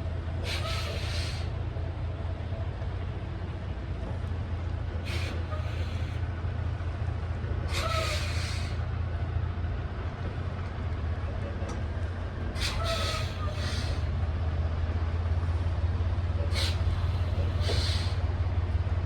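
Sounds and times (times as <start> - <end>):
diesel truck engine droning: 0.0 - 19.0
short air hisses with squeak: 5.1 - 6.1, 7.8 - 8.8, 12.6 - 14.0, 16.5 - 18.2.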